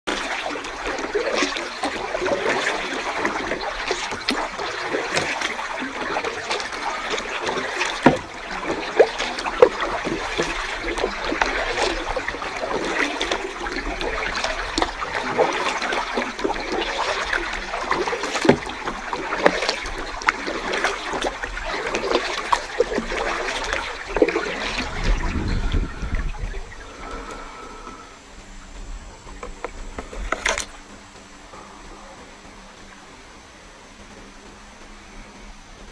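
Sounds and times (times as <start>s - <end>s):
water splashing and trickling: 0.0s - 35.9s
sharp paddle splashes: 0.1s - 13.5s, 14.7s - 24.9s.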